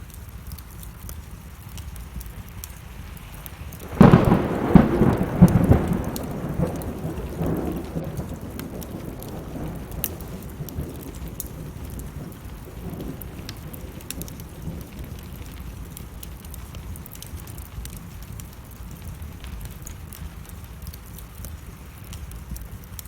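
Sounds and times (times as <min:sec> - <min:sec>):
rain falling: 0:00.0 - 0:23.0
wood fire crackling: 0:00.0 - 0:23.0
thunder rumble: 0:03.7 - 0:20.6.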